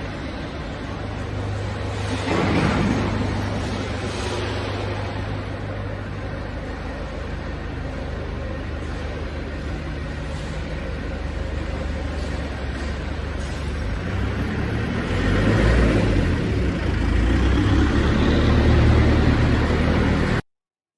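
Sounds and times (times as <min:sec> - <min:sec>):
diesel engine rumbling: 0:00.0 - 0:20.4.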